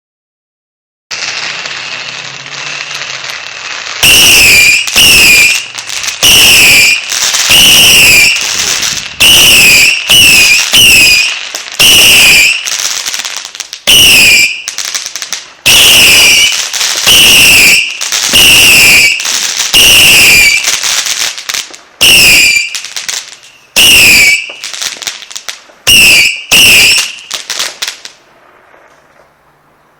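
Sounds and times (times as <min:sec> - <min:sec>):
fireworks shots: 0:01.1 - 0:29.9.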